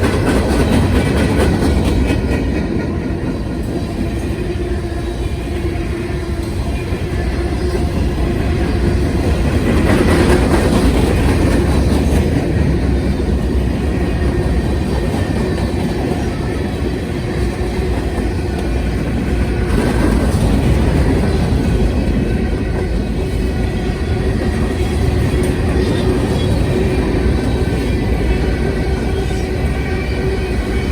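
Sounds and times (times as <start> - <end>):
freight train wheels rumbling: 0.0 - 30.9.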